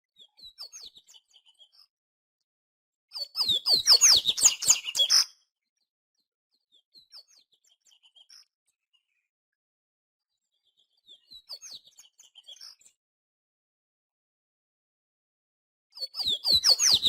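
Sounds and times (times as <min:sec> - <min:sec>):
faint bird chirps: 0:00.1 - 0:02.0, 0:03.1 - 0:09.3, 0:10.2 - 0:13.0, 0:15.9 - 0:17.0
bird singing whistled notes: 0:00.2 - 0:01.8, 0:03.1 - 0:05.4, 0:10.6 - 0:12.9, 0:16.0 - 0:17.0.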